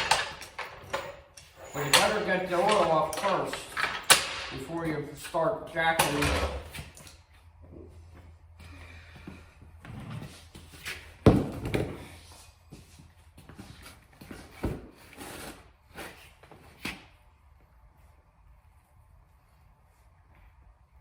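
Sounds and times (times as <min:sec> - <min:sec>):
tools and parts knocking: 0:00.0 - 0:04.7.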